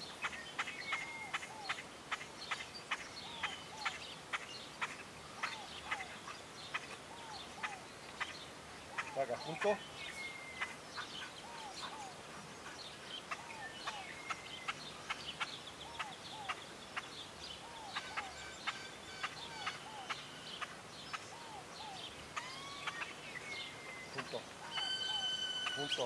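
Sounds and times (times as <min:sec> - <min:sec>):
high quick bird chirps: 0:22.4 - 0:26.0
bird two-note chirp: 0:24.7 - 0:26.0.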